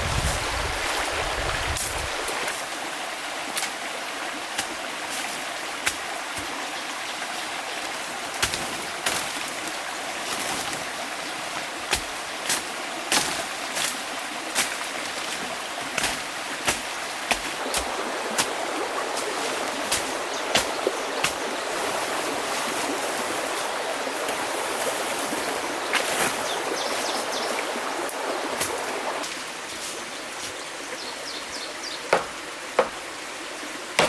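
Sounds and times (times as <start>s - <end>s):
running water rushing: 0.0s - 34.0s.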